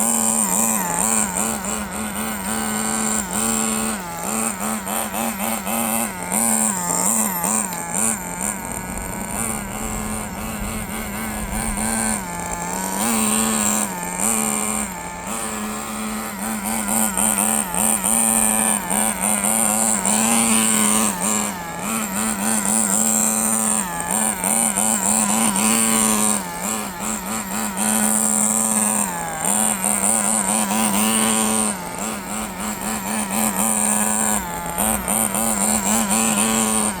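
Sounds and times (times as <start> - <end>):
small nitro engine buzzing: 0.0 - 37.0.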